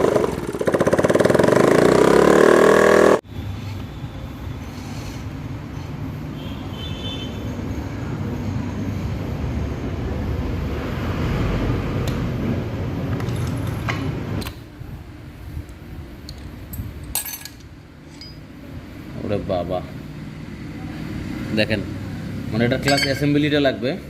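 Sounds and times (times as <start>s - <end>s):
engine running with rough rubbing: 0.0s - 3.8s.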